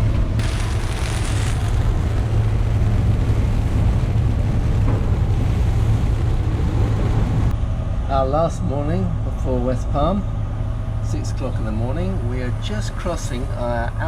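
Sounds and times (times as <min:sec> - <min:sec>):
rough sea: 0:00.0 - 0:07.5
wind rushing: 0:00.0 - 0:07.6
constant low drone: 0:00.0 - 0:14.0.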